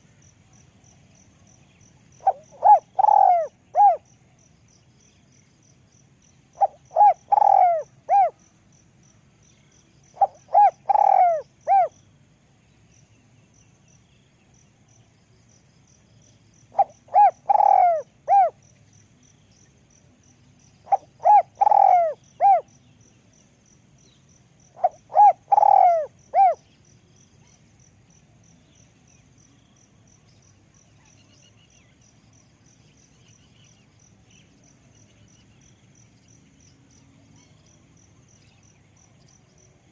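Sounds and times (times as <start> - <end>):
dove cooing: 2.2 - 4.0, 6.6 - 8.4, 10.2 - 11.9, 16.7 - 18.6, 20.9 - 22.7, 24.8 - 26.6.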